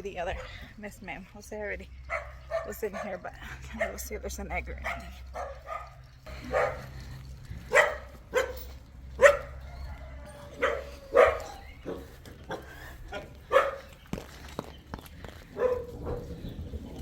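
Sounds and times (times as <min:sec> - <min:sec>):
dog barking: 0:02.1 - 0:03.2, 0:04.8 - 0:06.9, 0:07.7 - 0:09.6, 0:10.6 - 0:13.9, 0:15.6 - 0:16.4.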